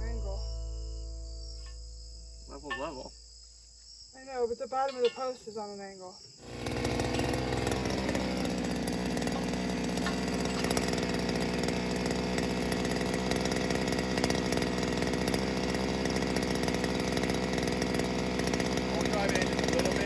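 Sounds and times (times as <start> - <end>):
small gas engine buzzing: 6.4 - 20.0.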